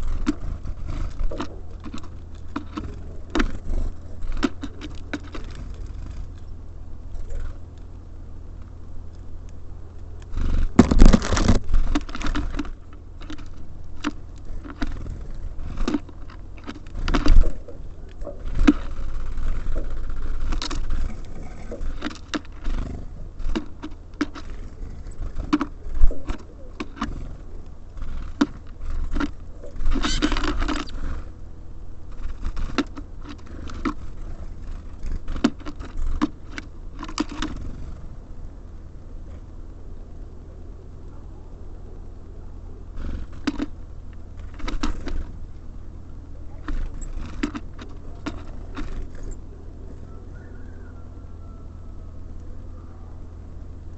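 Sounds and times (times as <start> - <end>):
claws scrabbling: 0.0 - 7.9, 8.5 - 38.1, 42.9 - 50.8
birds pecking at feeder: 0.0 - 53.9
steady low hum: 0.0 - 53.9
seed clattering: 10.4 - 27.4.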